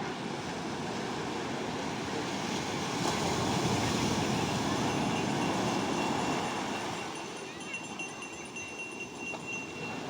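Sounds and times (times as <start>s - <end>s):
sea surf washing onto beach: 0.0s - 7.9s.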